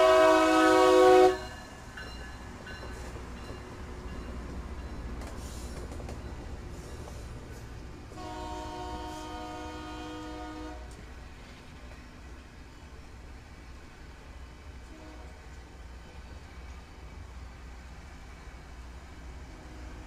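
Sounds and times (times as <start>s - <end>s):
multi-chime train horn: 0.0s - 2.9s, 8.1s - 10.9s, 14.8s - 15.4s
train rumbling past on rails: 0.0s - 20.0s.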